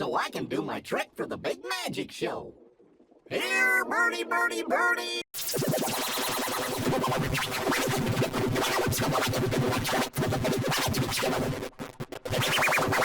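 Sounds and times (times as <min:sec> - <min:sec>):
electronic music with scratch chopping: 0:05.4 - 0:13.0.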